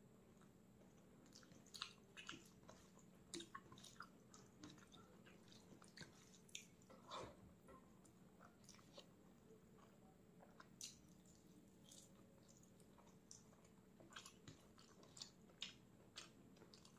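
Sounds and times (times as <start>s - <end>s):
low steady hum: 0.0s - 16.9s
chewing mouth clicks and smacks: 1.2s - 6.8s, 9.8s - 16.9s.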